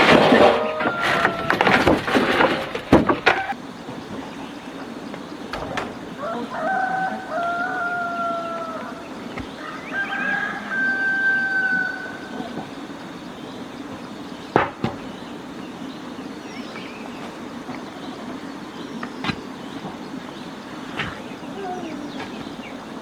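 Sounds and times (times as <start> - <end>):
rooster crowing: 0.3 - 2.1, 6.1 - 12.6.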